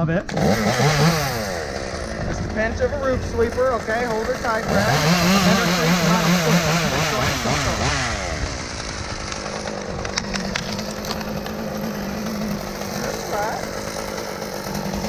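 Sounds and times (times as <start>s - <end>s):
chainsaw revving and idling: 0.0s - 15.0s
sharp clicks: 9.2s - 11.6s.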